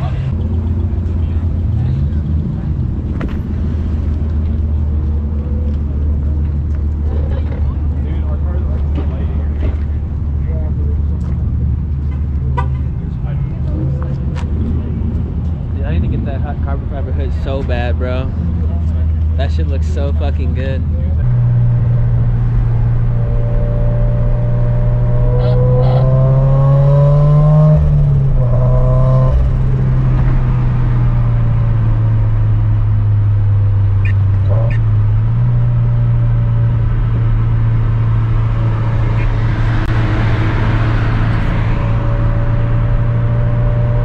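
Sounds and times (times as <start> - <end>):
car engine drone: 0.0 - 44.0.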